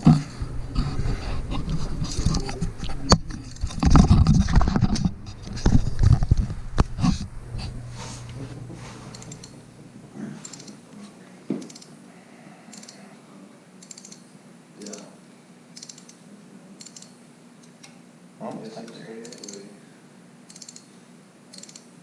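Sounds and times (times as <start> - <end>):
ratchet wrench clicking: 13.8 - 14.2, 15.8 - 16.2, 16.8 - 17.2, 19.2 - 19.6, 20.5 - 20.8, 21.5 - 21.8.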